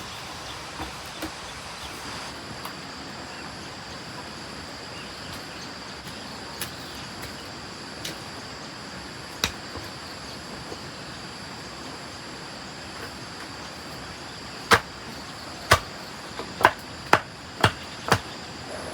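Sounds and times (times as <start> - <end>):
steady hiss: 0.0 - 18.9
sharp knocks: 14.7 - 15.0.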